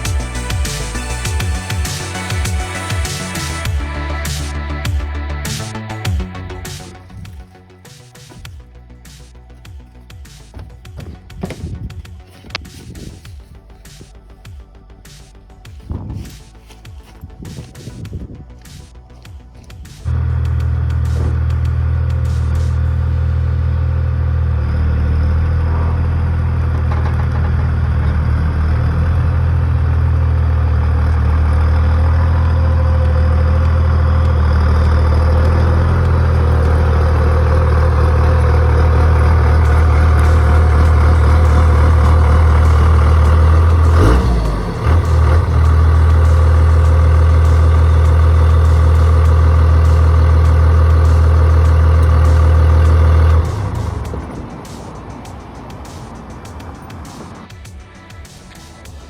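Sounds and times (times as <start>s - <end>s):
diesel engine running at high speed: 0.0s - 7.4s, 20.1s - 57.3s.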